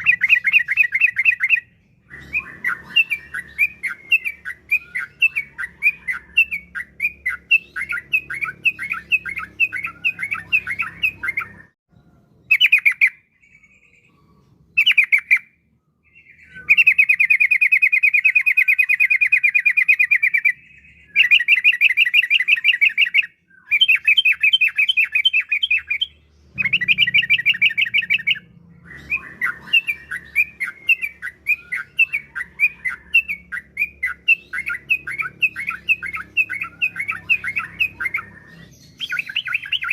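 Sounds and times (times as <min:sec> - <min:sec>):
bird singing bubbly notes and trills: 0:00.0 - 0:39.9.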